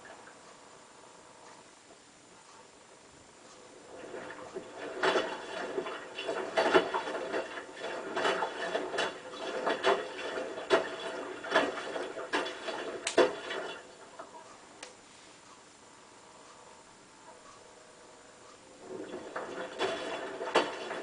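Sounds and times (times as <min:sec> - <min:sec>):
washing machine drum turning: 0:18.8 - 0:21.0.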